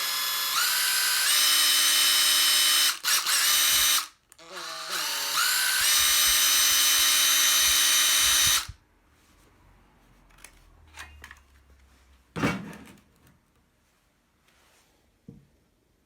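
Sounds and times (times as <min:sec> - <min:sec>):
impact driver whining: 0:00.0 - 0:08.8.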